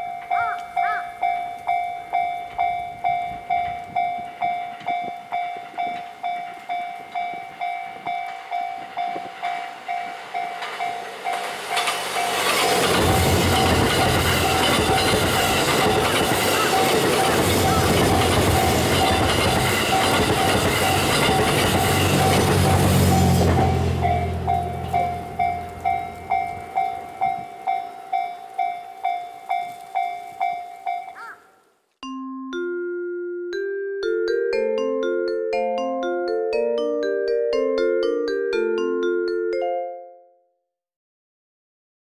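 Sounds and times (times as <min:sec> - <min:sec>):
level crossing warning bell: 0:00.0 - 0:31.3
train wheels on rails: 0:00.0 - 0:31.3
deep train rumble: 0:01.5 - 0:30.8.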